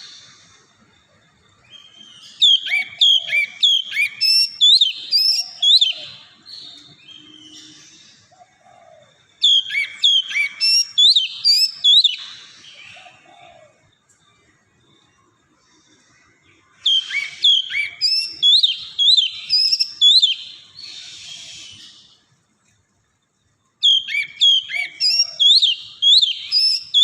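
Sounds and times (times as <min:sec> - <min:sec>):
bird singing whistled notes: 0:01.6 - 0:08.3, 0:09.4 - 0:13.2, 0:16.5 - 0:22.3, 0:23.8 - 0:27.0.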